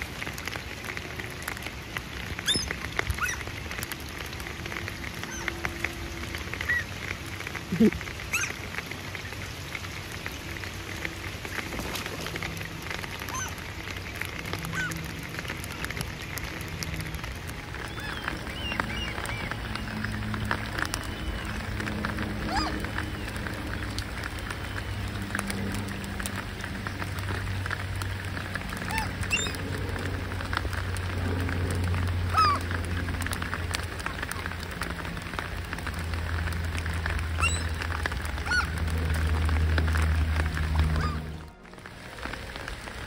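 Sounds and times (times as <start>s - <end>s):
rain pattering on water: 0.0s - 43.0s
water birds calling: 0.0s - 43.0s
low rumble: 10.4s - 43.0s.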